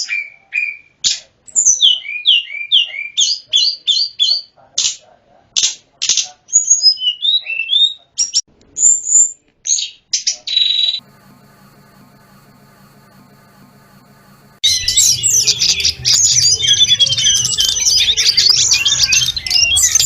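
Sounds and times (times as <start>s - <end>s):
faint hum: 11.0s - 20.0s.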